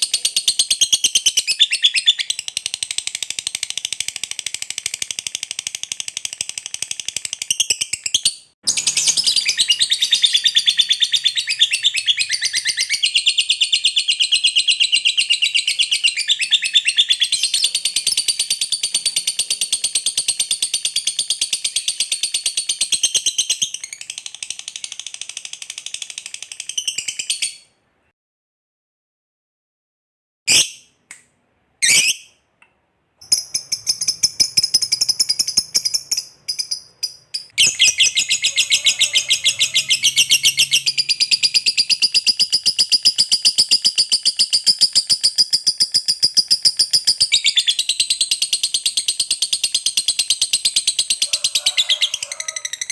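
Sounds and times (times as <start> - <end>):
bird chirps: 0.0 - 27.8, 33.2 - 52.9
bird chattering trill: 8.7 - 24.2, 33.2 - 52.9.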